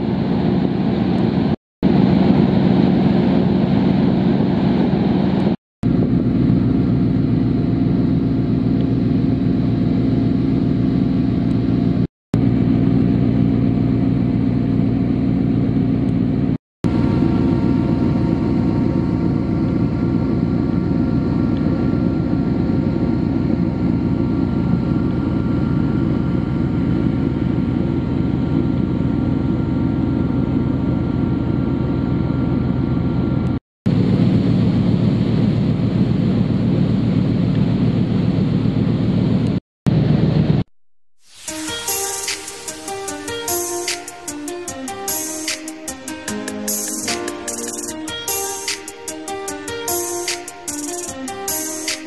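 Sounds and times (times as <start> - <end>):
boat engine droning: 0.0 - 40.6.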